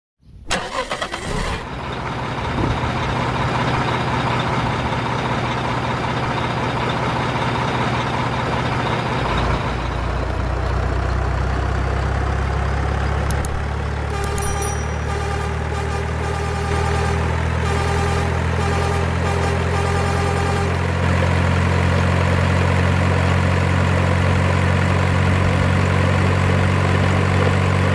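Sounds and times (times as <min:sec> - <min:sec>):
truck engine idling: 0:00.5 - 0:27.9
clicks: 0:13.2 - 0:15.4.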